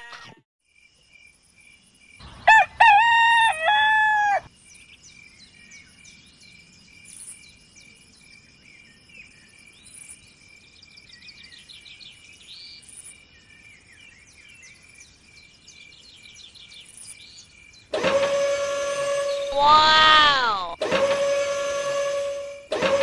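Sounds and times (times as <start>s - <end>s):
rooster crowing: 2.4s - 4.5s, 19.3s - 20.8s.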